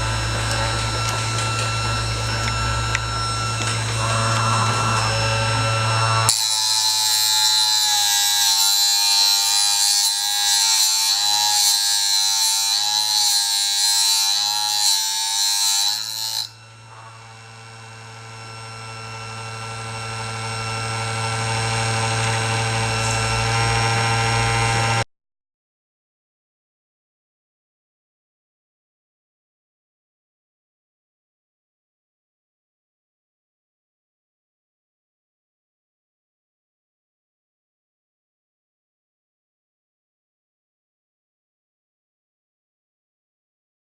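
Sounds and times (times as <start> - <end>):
blade grinding on wheel: 0.0 - 17.4, 19.2 - 25.0
electric motor humming: 0.0 - 25.0.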